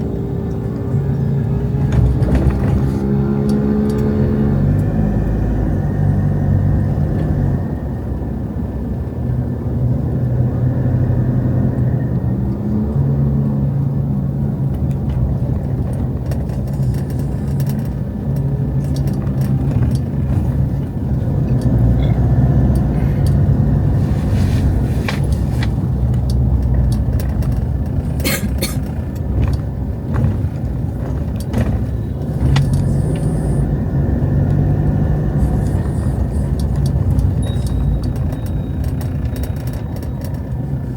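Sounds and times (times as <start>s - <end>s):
car engines humming: 0.0s - 40.9s
sharp clicks and knocks: 14.7s - 23.5s, 24.7s - 33.3s, 35.3s - 40.8s.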